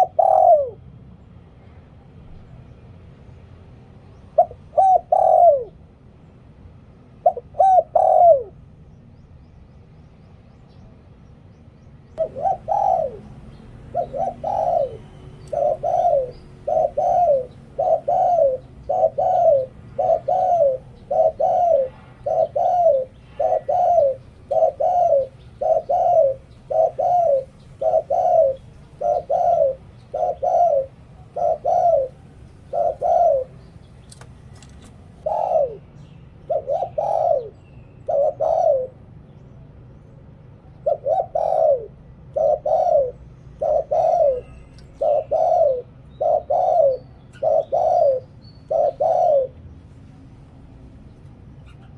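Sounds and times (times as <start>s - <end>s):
dove cooing: 0.0s - 0.8s, 4.4s - 5.8s, 7.2s - 8.6s, 12.2s - 39.1s, 40.7s - 49.6s.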